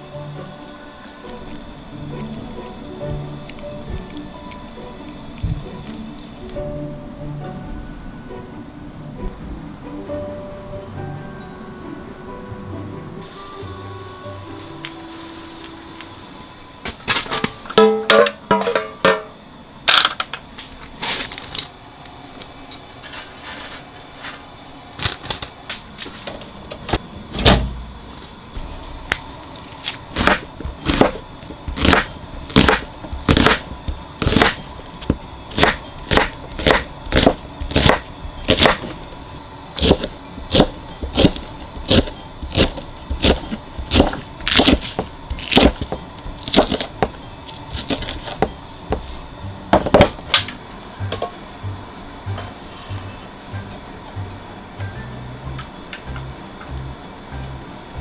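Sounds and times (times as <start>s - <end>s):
knife chopping on cutting board: 30.1s - 50.2s.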